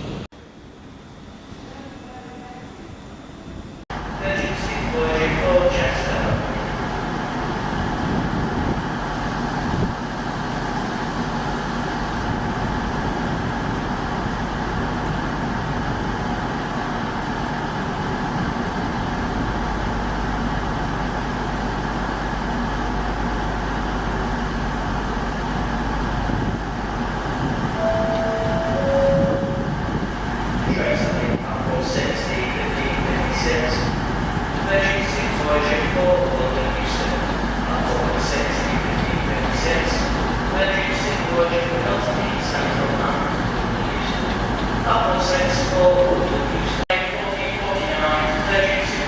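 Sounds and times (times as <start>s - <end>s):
vehicle engine humming: 6.3s - 47.1s
short steady tones: 27.8s - 30.1s.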